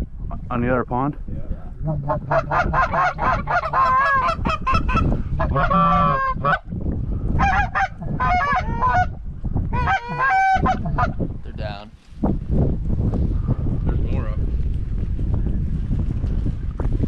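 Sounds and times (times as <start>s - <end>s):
flock of geese honking: 2.1s - 6.6s, 9.8s - 11.1s.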